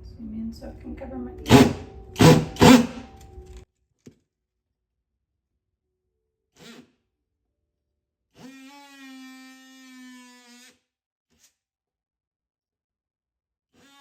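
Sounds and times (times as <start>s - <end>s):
power tool whining: 1.5s - 3.3s.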